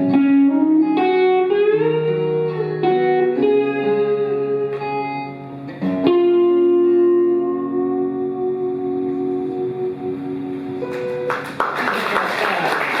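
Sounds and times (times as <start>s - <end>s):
guitar sliding notes: 0.0s - 11.6s
live blues band playing: 0.0s - 11.7s.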